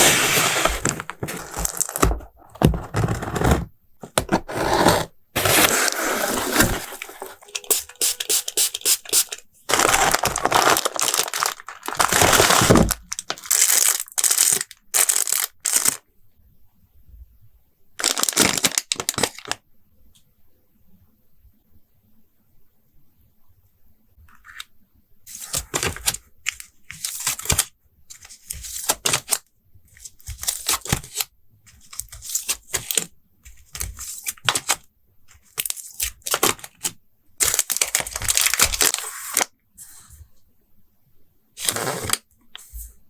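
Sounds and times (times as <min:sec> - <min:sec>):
plastic packaging crinkling and tearing: 0:00.0 - 0:03.5, 0:05.4 - 0:16.0, 0:18.0 - 0:19.6, 0:25.3 - 0:29.4, 0:31.8 - 0:34.8, 0:35.4 - 0:39.5, 0:41.6 - 0:42.2.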